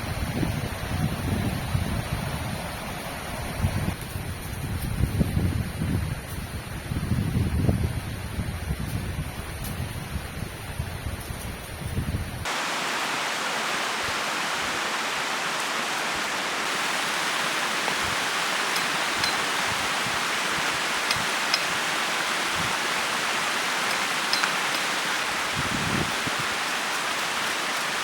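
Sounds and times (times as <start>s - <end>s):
flowing river: 0.0s - 4.0s, 12.4s - 28.0s
wind buffeting microphone: 0.0s - 12.6s, 13.8s - 28.0s.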